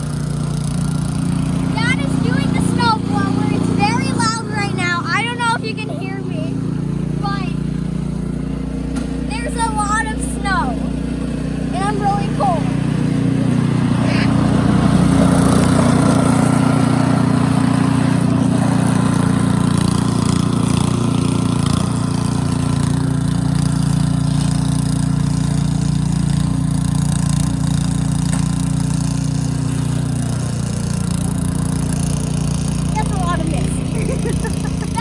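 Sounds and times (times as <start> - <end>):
snow blower engine running: 0.0 - 35.0.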